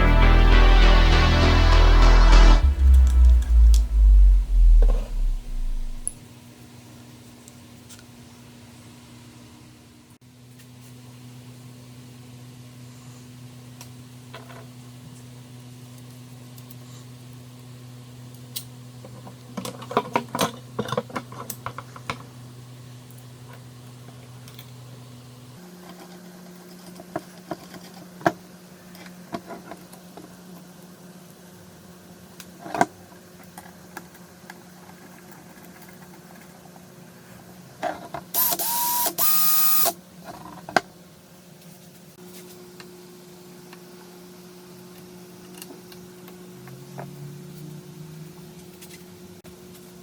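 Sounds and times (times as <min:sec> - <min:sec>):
loud whine and hiss: 0:00.0 - 0:06.2, 0:38.4 - 0:39.9
steady low hum: 0:00.0 - 0:06.2.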